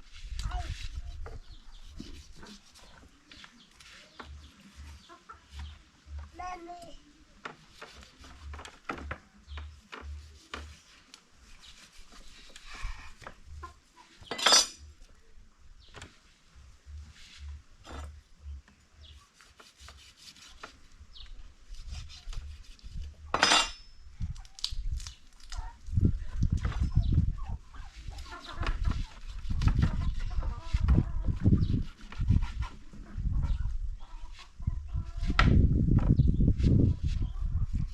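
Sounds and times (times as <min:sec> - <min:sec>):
utensils clinking on pots and dishes: 0:14.3 - 0:14.8, 0:23.3 - 0:24.0.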